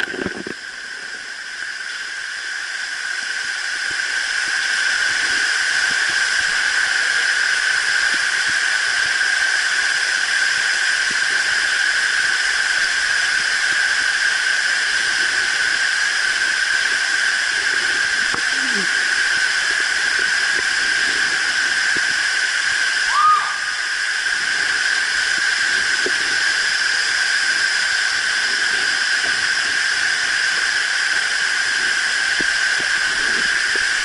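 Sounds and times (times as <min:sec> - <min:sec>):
waterfall rushing: 0:15.4 - 0:29.1.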